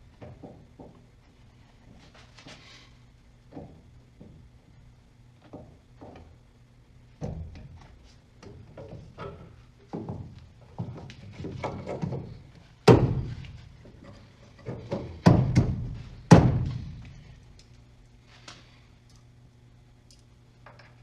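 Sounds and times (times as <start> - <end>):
heavy knocks on car parts: 11.6 - 13.5, 14.6 - 17.0.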